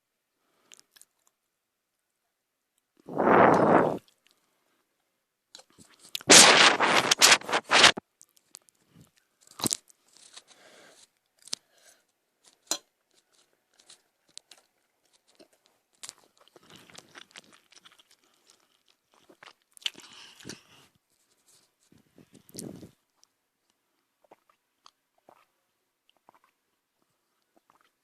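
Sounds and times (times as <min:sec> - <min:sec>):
person chewing food: 0:12.5 - 0:20.9, 0:24.2 - 0:28.0.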